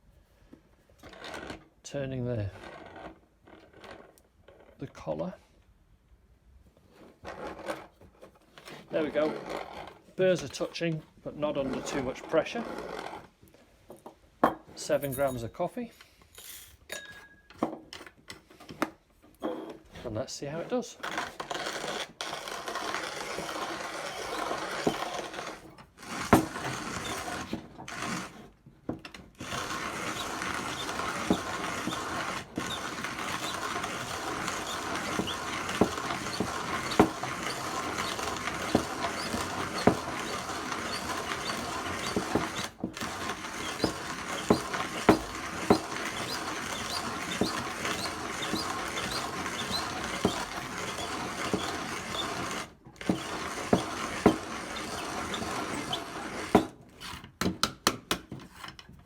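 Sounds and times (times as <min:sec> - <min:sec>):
coffee grinder grinding beans: 0:01.0 - 0:04.8, 0:08.6 - 0:13.4, 0:20.4 - 0:57.3.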